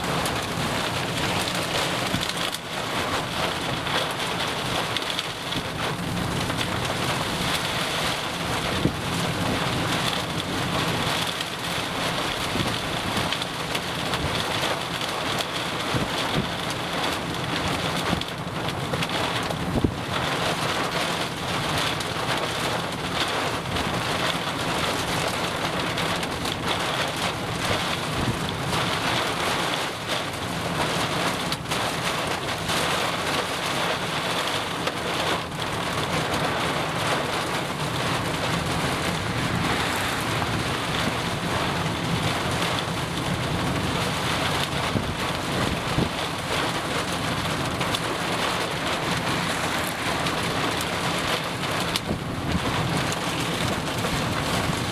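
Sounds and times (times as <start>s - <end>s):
heavy rain: 0.0s - 54.9s
wind: 0.0s - 54.9s
low rumble: 38.6s - 42.7s.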